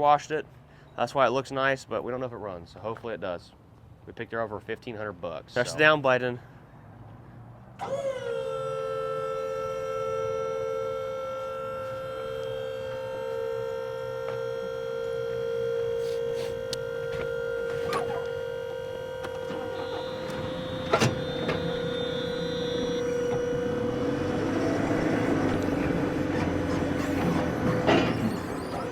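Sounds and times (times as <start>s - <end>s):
electric motor whining: 7.8s - 28.9s.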